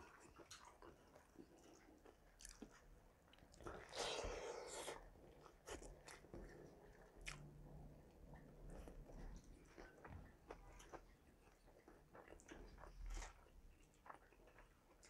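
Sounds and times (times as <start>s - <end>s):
man chewing with mouth clicks: 0.0s - 15.0s.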